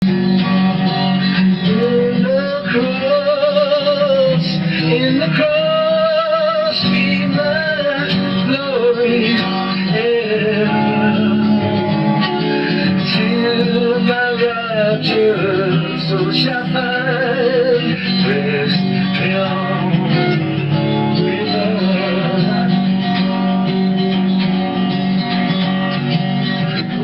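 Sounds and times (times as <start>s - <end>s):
instrumental accompaniment: 0.0s - 27.0s
person singing a slow hymn: 1.6s - 11.4s, 13.0s - 20.4s.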